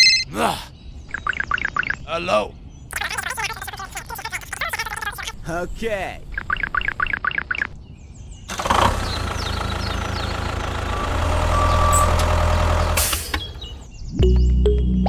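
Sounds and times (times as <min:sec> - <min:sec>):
engine humming: 0:08.5 - 0:13.9.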